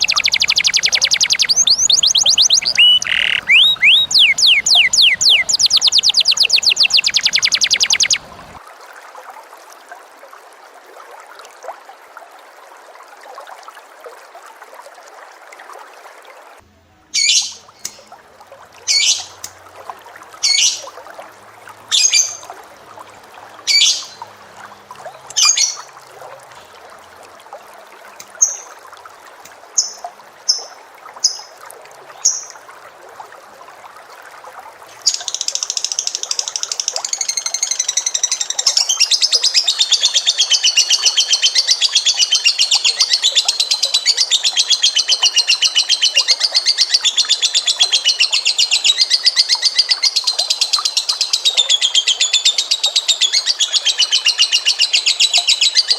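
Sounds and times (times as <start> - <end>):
bird calling: 0.0 - 8.6, 35.0 - 55.9
rapid bird trilling song: 0.0 - 8.6, 35.0 - 55.9.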